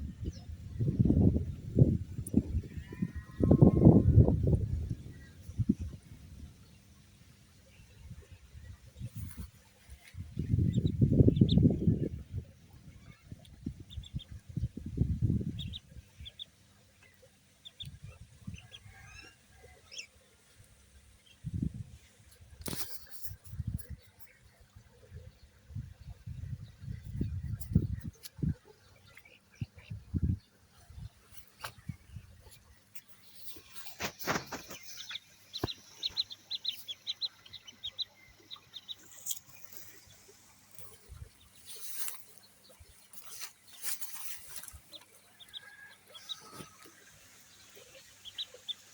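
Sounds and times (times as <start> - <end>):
ducklings peeping: 9.0 - 20.1, 25.5 - 48.9.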